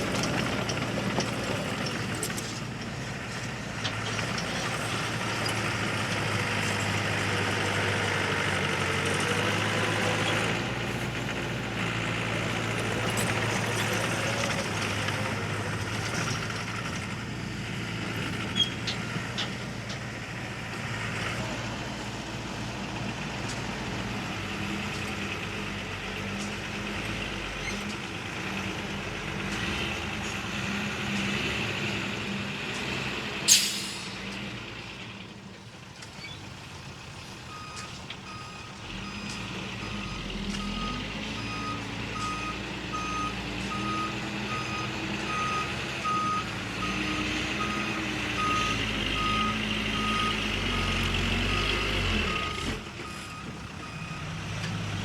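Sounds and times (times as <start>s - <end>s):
diesel truck engine: 0.0s - 55.0s
air brake hiss: 33.5s - 34.3s
reversing alarm beeping: 37.5s - 54.4s.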